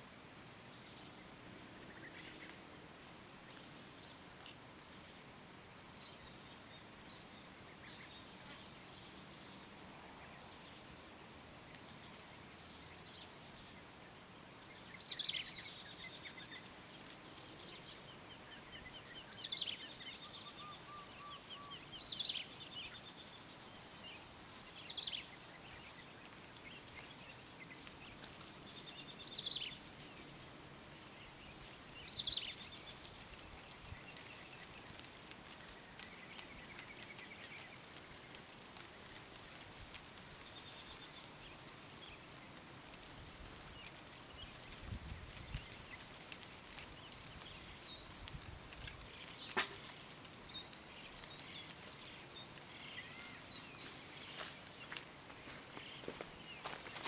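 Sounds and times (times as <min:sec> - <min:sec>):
steady background hiss: 0:00.0 - 0:57.0
bird call with dry chatter: 0:43.8 - 0:57.0.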